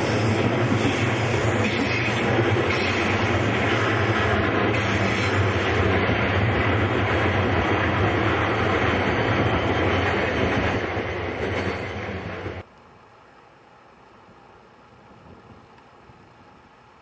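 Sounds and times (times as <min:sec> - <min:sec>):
train wheels rumbling on track: 0:00.0 - 0:12.7.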